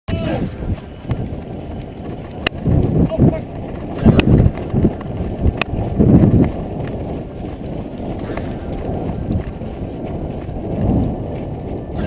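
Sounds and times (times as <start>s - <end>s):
wind buffeting microphone: 0.1s - 12.0s.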